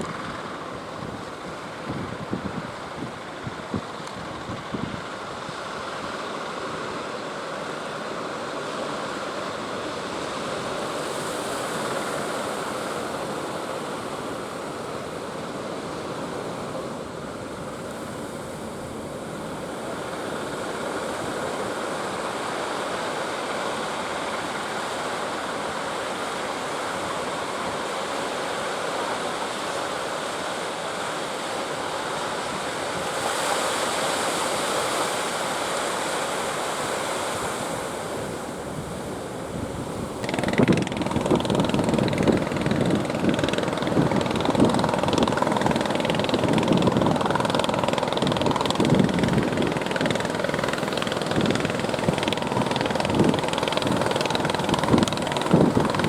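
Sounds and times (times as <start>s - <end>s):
strong wind: 38.6s - 56.0s
ocean surf breaking: 39.0s - 56.0s.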